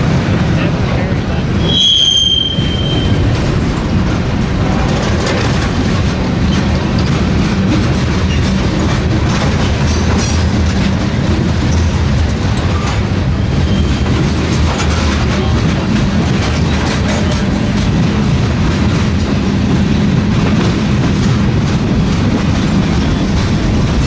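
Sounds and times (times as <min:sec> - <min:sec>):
freight train rumbling past: 0:00.0 - 0:24.0
train wheel squeal: 0:01.6 - 0:03.6, 0:12.7 - 0:15.1.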